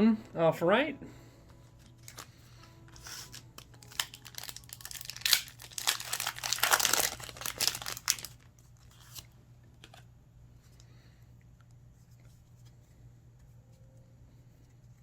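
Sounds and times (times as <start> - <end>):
foil wrapper crinkling and ripping: 1.9 - 2.3, 2.9 - 9.2.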